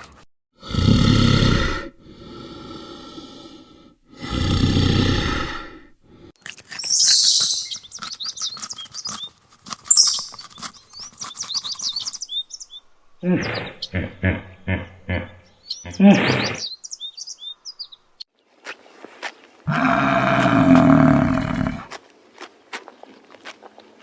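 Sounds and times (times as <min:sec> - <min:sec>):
birds chirping: 0:06.7 - 0:24.0
animal calling low: 0:19.7 - 0:21.9.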